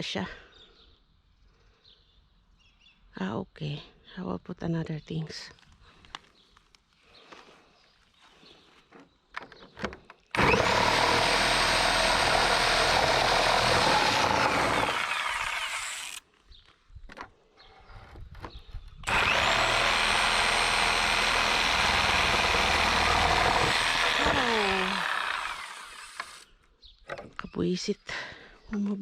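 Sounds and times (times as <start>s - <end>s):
power tool motor whine: 10.3s - 16.2s, 19.0s - 26.5s.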